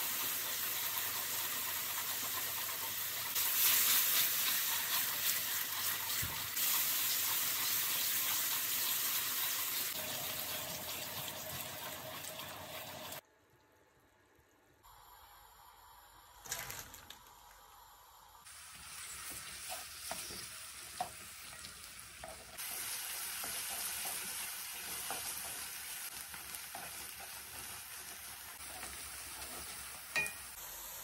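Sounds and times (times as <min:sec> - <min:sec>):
chicken sizzling in a wok: 0:00.0 - 0:13.2, 0:18.4 - 0:31.0.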